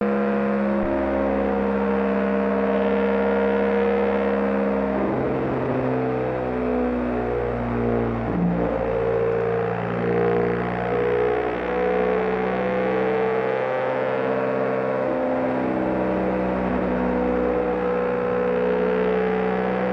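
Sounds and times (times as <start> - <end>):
distorted electric guitar: 0.0 - 19.9.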